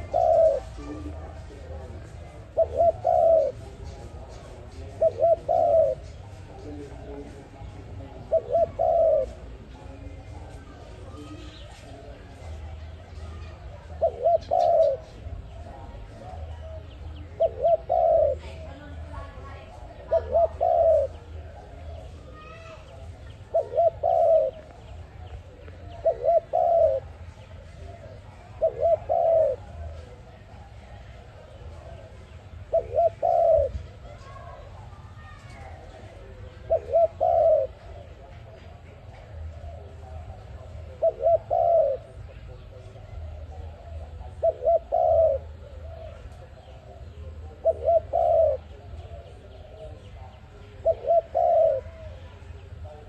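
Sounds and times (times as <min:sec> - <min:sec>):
dove cooing: 0:00.0 - 0:53.0.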